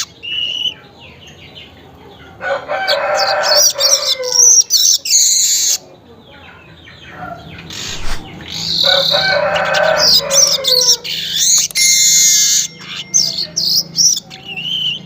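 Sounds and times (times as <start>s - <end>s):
weaver birds chattering song: 0.0s - 15.0s
harsh bird call: 7.4s - 15.0s.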